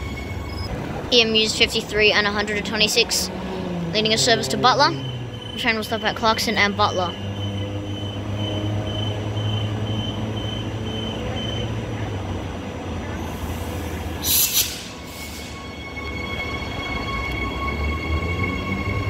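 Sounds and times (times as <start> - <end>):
train low hum: 0.0 - 19.0
air hisses: 13.3 - 15.6.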